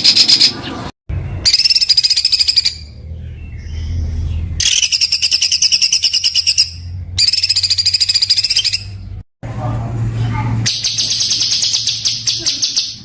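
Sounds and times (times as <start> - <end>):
songbird rapid rattling song: 0.0 - 9.2, 10.6 - 13.0
low steady hum: 0.5 - 13.0.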